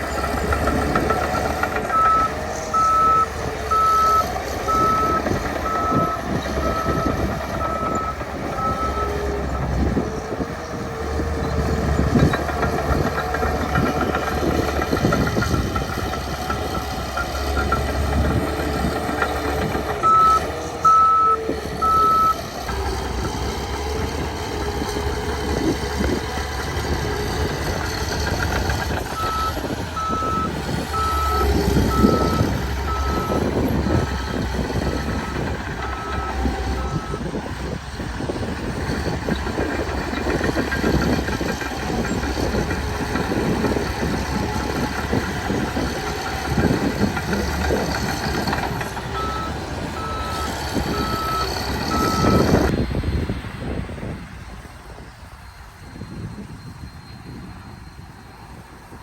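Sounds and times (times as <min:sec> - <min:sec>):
diesel earthmover working: 0:00.0 - 0:59.0
reversing alarm beeping: 0:00.8 - 0:09.2, 0:20.0 - 0:22.4, 0:29.0 - 0:37.4, 0:40.8 - 0:52.7.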